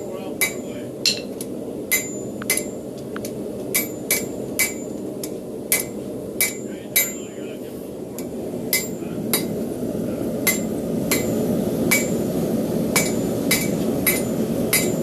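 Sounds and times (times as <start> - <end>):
hammer striking metal on anvil: 0.0 - 2.8, 3.7 - 5.0, 5.7 - 7.3, 8.2 - 9.5, 10.4 - 12.2, 12.9 - 15.0
low rushing noise: 7.4 - 15.0.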